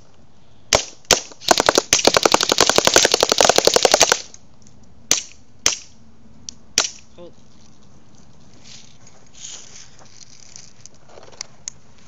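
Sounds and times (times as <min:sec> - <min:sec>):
airsoft gun shots: 0:00.7 - 0:04.3
full-auto burst: 0:00.7 - 0:04.3.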